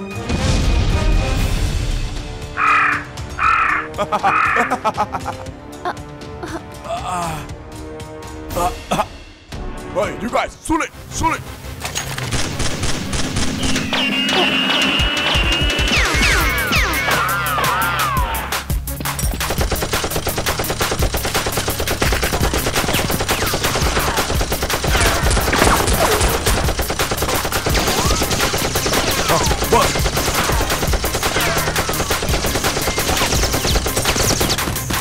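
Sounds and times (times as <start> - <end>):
rapid automatic gunfire effects: 12.3 - 16.8, 19.4 - 35.0.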